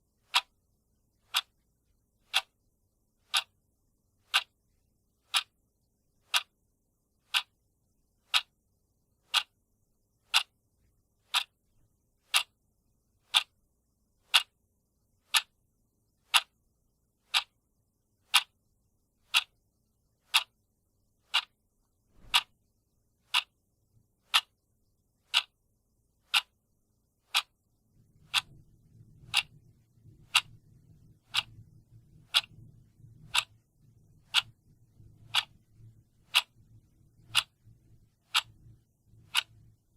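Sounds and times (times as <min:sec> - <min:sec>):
clock ticking: 0:00.0 - 0:00.6, 0:01.2 - 0:02.6, 0:03.2 - 0:05.6, 0:06.2 - 0:08.6, 0:09.2 - 0:12.6, 0:13.2 - 0:14.6, 0:15.2 - 0:15.6, 0:16.2 - 0:17.6, 0:18.2 - 0:18.6, 0:19.2 - 0:19.6, 0:20.2 - 0:20.6, 0:21.2 - 0:22.6, 0:23.2 - 0:23.6, 0:24.2 - 0:25.6, 0:26.2 - 0:39.9
faint low hum: 0:00.0 - 0:39.9.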